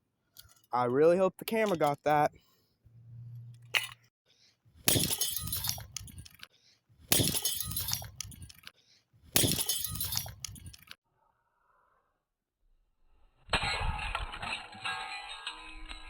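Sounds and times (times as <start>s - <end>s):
smashing impacts on toy: 4.8s - 5.9s, 7.1s - 8.1s, 9.3s - 10.4s.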